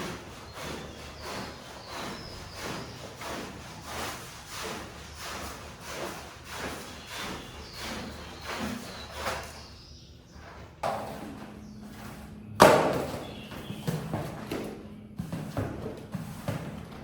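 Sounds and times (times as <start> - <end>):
scraping strokes on wet rug: 0.0 - 9.7.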